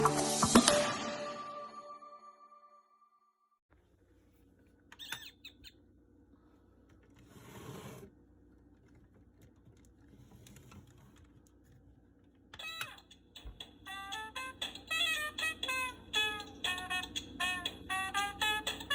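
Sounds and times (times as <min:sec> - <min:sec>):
brief squeak: 0:05.0 - 0:05.6.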